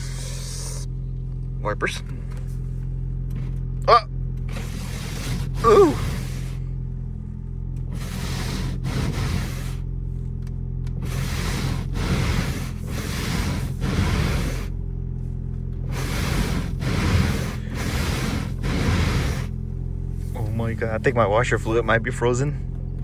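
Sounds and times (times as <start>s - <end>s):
car engine hum: 0.0s - 23.0s
windshield wipers swishing: 3.3s - 6.6s, 7.8s - 9.9s, 10.9s - 14.8s, 15.8s - 21.7s.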